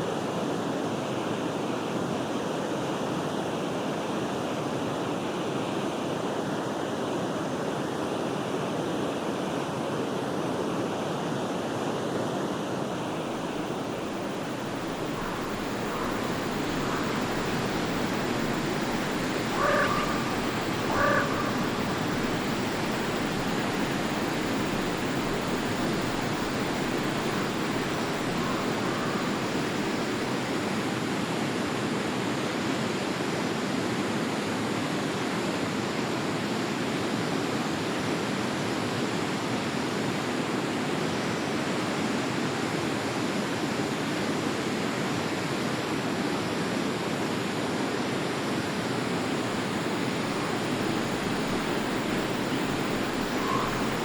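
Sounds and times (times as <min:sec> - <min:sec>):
river flowing: 0:00.2 - 0:32.8, 0:43.7 - 0:54.0.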